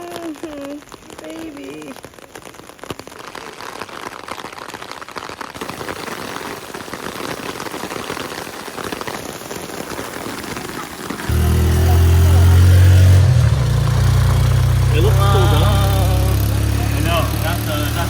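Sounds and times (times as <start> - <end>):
rain pattering on hard surfaces: 0.0 - 18.0
low engine drone: 11.3 - 18.0.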